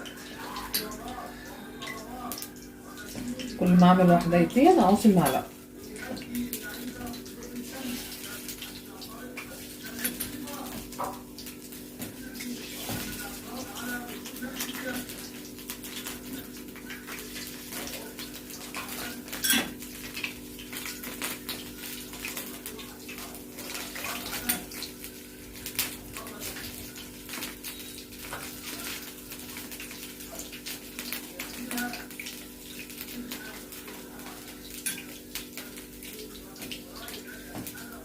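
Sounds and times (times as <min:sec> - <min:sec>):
batter sizzling in hot oil: 0:00.0 - 0:38.0
teaspoon clinking on a dish: 0:18.8 - 0:19.8.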